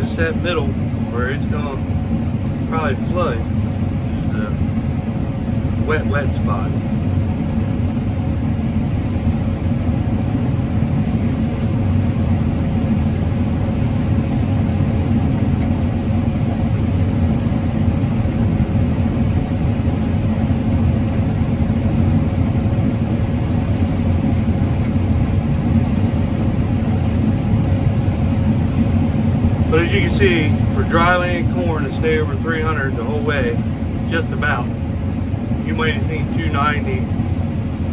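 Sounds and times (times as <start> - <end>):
combine harvester drone: 0.0 - 37.9
faint steady hum: 0.0 - 37.9.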